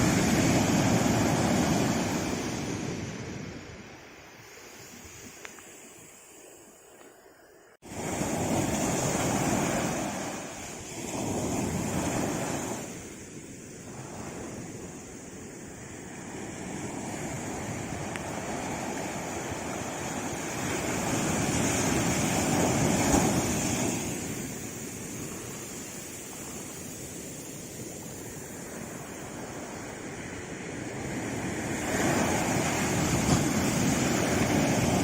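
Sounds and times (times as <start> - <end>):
sea waves breaking: 0.0 - 35.0.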